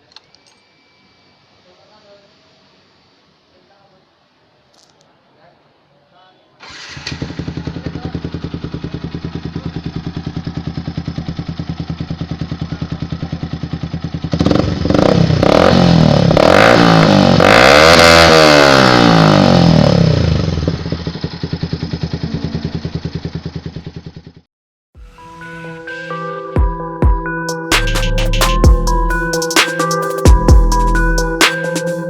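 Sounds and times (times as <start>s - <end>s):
motorcycle engine idling and revving: 6.6s - 24.5s.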